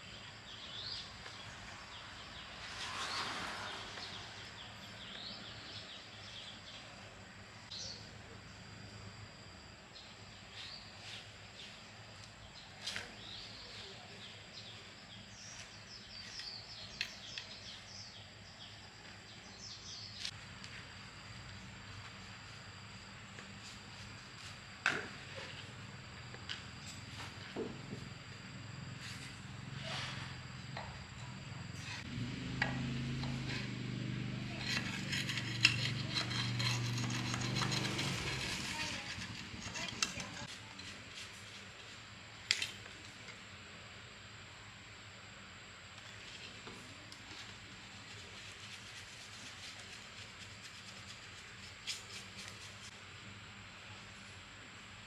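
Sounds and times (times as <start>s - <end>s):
small birds chirping: 10.0s - 20.3s
low machine hum: 20.4s - 40.5s.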